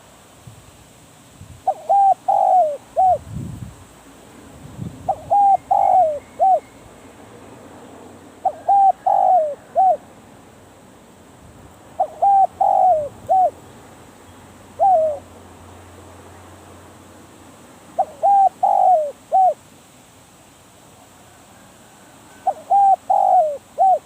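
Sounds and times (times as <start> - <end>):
dove cooing: 1.7 - 3.2, 5.1 - 6.7, 8.4 - 10.1, 11.9 - 13.6, 14.7 - 15.4, 18.0 - 19.6, 21.3 - 24.0.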